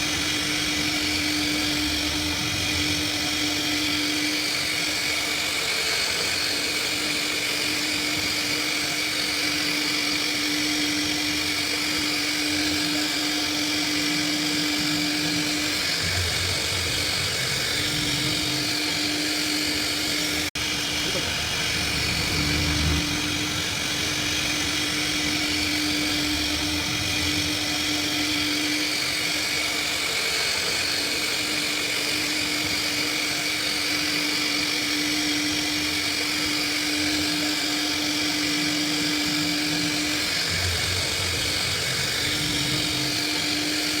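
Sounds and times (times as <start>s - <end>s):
router spindle high whine: 0.0s - 44.0s
lower hum: 15.6s - 28.5s.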